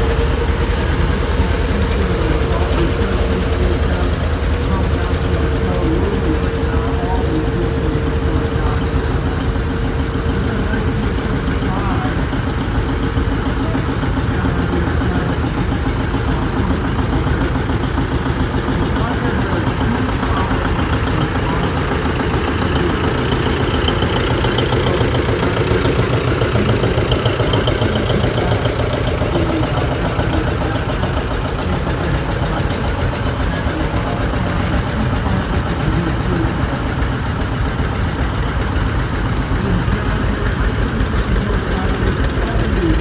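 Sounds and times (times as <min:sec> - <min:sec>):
tractor engines running: 0:00.0 - 0:43.0.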